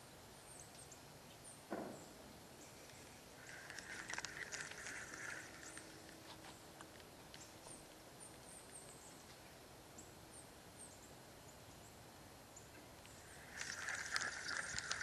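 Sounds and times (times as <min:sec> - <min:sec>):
small bird chirping faintly: 0:00.0 - 0:15.0
scratchy rustling with clicks: 0:02.8 - 0:08.0.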